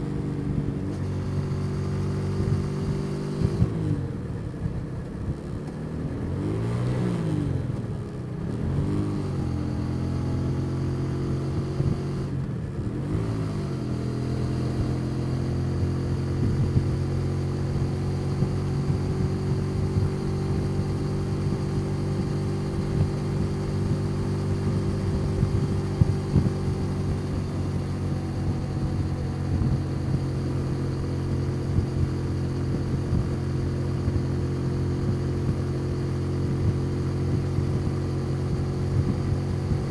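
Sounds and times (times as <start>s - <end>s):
motorcycle engine revving: 12.9s - 39.9s.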